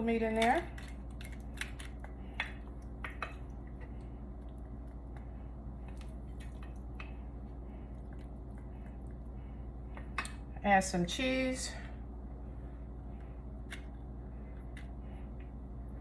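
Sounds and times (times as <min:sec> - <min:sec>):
steady low hum: 0:00.0 - 0:16.0
wet squishing: 0:00.3 - 0:10.1.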